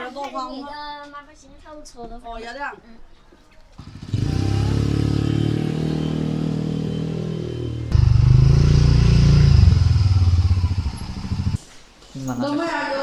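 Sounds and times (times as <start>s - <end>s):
motor humming: 3.8s - 11.6s.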